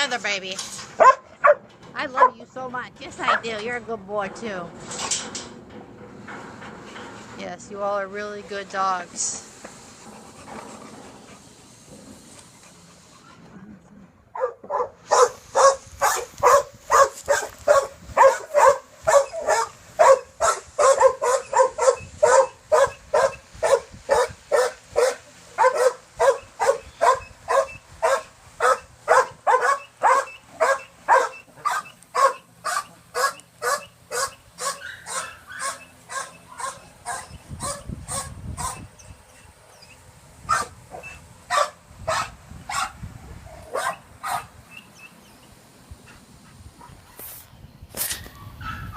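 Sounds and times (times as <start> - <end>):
dogs barking: 1.0 - 2.4, 14.4 - 39.0, 40.5 - 43.0, 43.6 - 44.6, 48.6 - 48.9.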